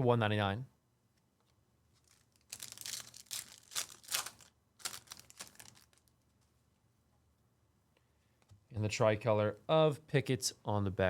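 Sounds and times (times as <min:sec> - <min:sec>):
plastic sleeves crinkling: 0:01.9 - 0:06.5.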